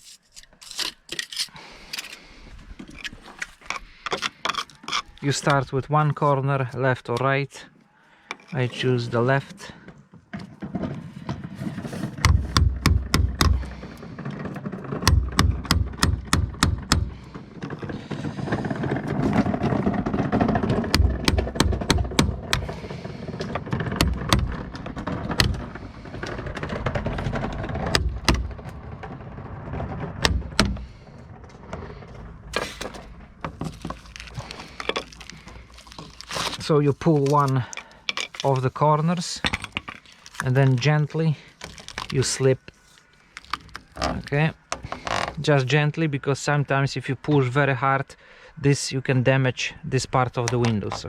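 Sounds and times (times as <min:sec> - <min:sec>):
tool scraping plastic: 0:00.0 - 0:06.2, 0:10.3 - 0:45.5
tool tapping and knocking: 0:12.0 - 0:14.0, 0:15.0 - 0:17.4, 0:20.4 - 0:25.8, 0:27.7 - 0:28.6, 0:30.2 - 0:30.9.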